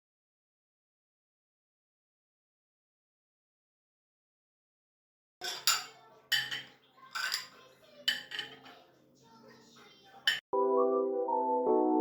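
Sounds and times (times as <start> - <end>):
cutlery and dishes clinking: 5.4 - 8.9, 10.2 - 10.4.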